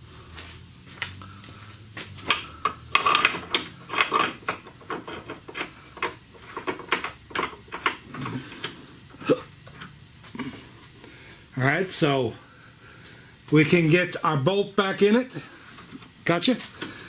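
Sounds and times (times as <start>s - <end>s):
metallic clicks and clatter of tools: 2.2s - 8.8s.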